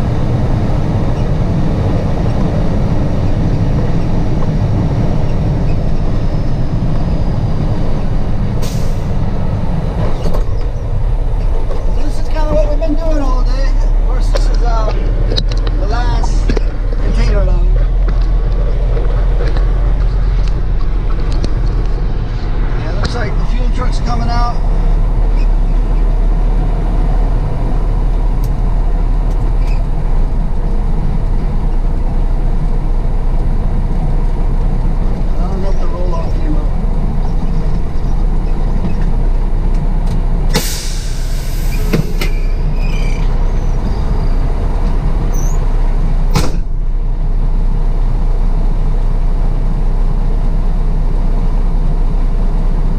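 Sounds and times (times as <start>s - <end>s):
truck engine and road rumble: 0.0s - 52.9s
short hiss: 40.5s - 42.6s.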